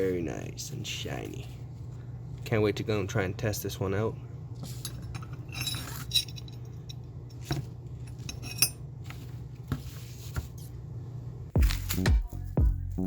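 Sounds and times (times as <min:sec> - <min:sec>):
metal utensil clinking and rattling: 0:04.8 - 0:08.8.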